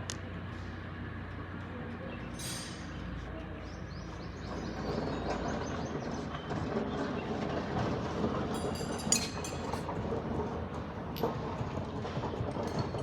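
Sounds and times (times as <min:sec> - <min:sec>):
mechanical clatter and rumble: 0:00.0 - 0:13.0
ringing metallic clank: 0:02.4 - 0:03.1, 0:08.6 - 0:10.0.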